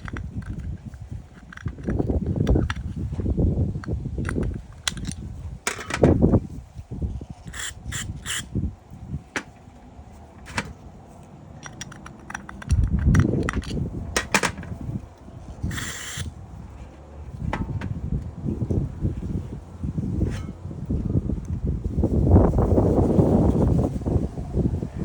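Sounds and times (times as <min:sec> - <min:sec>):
small tools clicking and tapping: 0:00.0 - 0:06.3, 0:07.4 - 0:08.5, 0:10.4 - 0:16.4
handling noise: 0:00.0 - 0:22.6.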